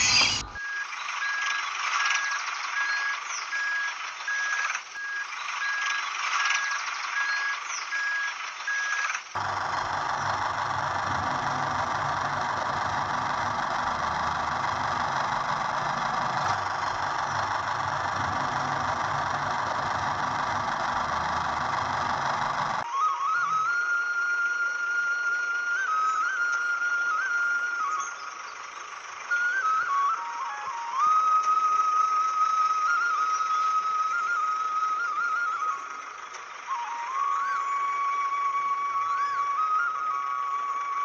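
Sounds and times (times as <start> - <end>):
reversing alarm beeping: 0.0 - 25.5
engine running with low throb: 0.0 - 41.0.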